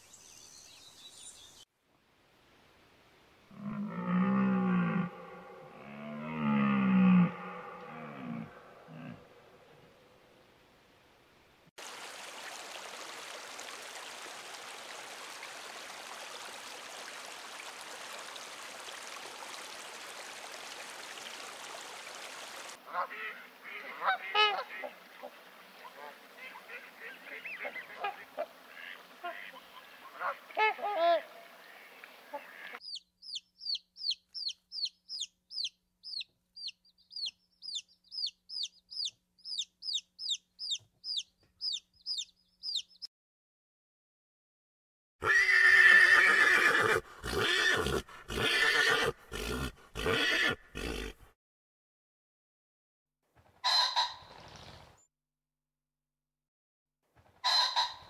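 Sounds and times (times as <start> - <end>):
chicks peeping: 32.8 - 43.1
pony whinnying: 45.2 - 51.2.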